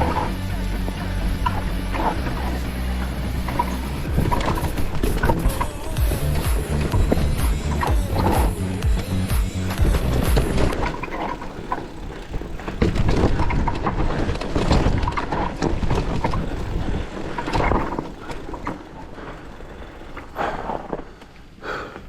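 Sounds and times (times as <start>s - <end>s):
bike rattling over bumps: 0.0s - 22.0s
tyres rumbling on dirt trail: 0.0s - 22.0s.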